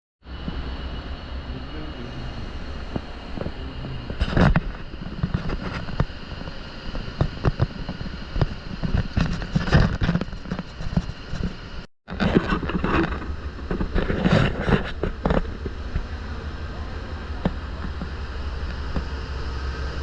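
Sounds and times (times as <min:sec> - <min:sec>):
passenger train rumbling: 0:00.3 - 0:09.5, 0:13.1 - 0:20.0.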